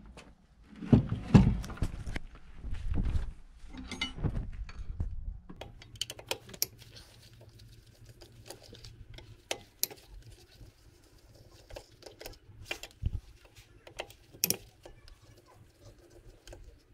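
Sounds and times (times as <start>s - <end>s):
metal parts clicking and clinking: 13.9s - 15.0s.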